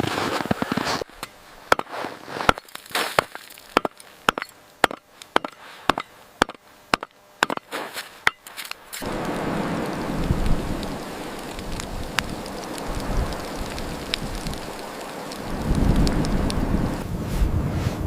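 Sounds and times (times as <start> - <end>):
steady hiss: 0.0 - 17.5.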